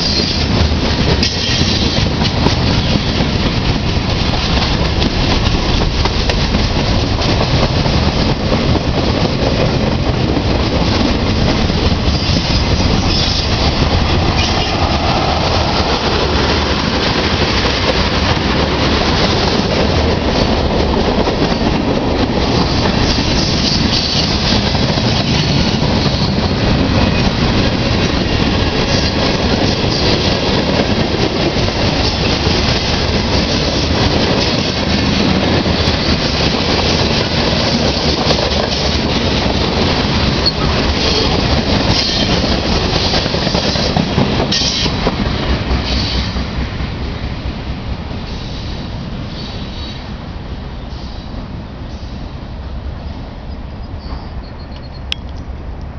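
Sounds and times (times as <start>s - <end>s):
train wheels clattering on rails: 0.0s - 50.1s.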